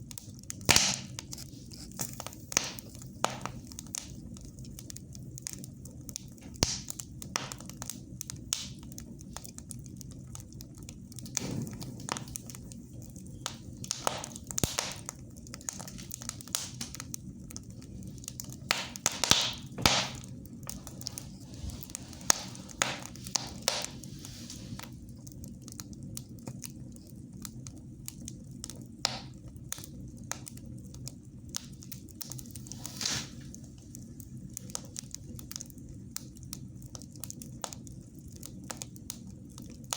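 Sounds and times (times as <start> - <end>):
fire hissing: 0.0 - 39.9
low fire rumble: 0.0 - 39.9
wood fire crackling and popping: 0.0 - 39.9.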